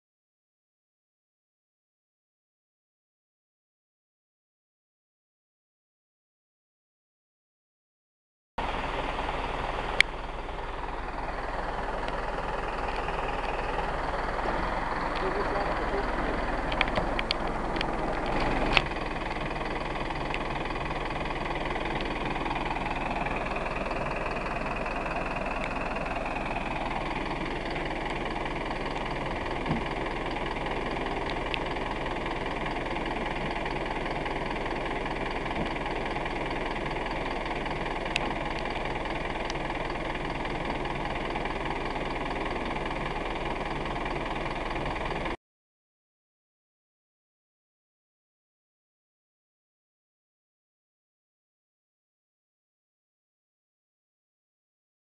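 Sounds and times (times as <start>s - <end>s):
truck engine running: 8.6s - 45.4s
sharp clicks: 16.6s - 19.0s.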